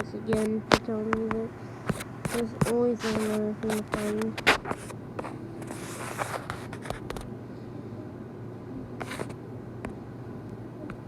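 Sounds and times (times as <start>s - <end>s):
sharp clicks and taps: 0.0s - 4.7s
steady low hum: 0.0s - 11.0s
rustling handling noise: 0.3s - 7.3s.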